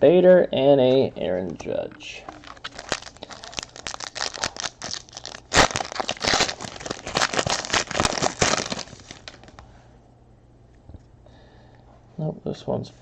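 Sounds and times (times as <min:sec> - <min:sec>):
foil wrapper tearing and crinkling: 0:02.3 - 0:09.6.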